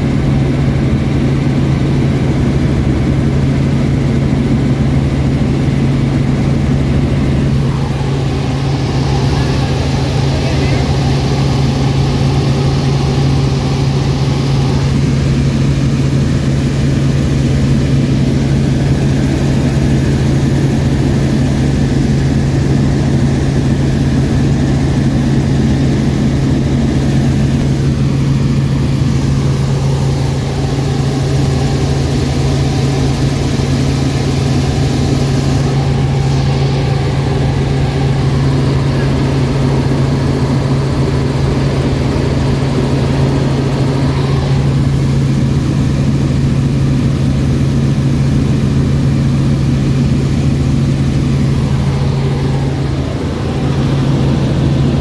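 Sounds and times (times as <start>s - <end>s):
helicopter engine and rotors: 0.0s - 55.0s.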